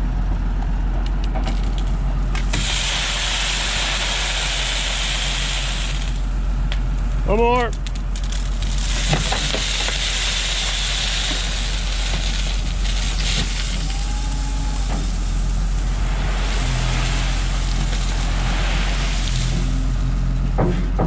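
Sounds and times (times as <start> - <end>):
skid steer engine running: 0.0 - 21.0
stone sliding out of bucket: 8.2 - 14.0.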